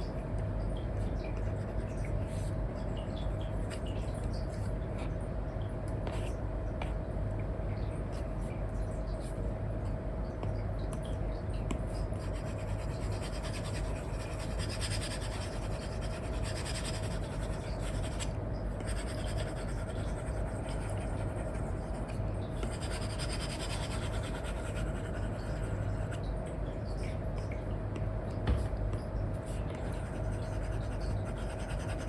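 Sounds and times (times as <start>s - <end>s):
stylus scratching on screen: 11.9s - 26.2s, 29.5s - 32.0s.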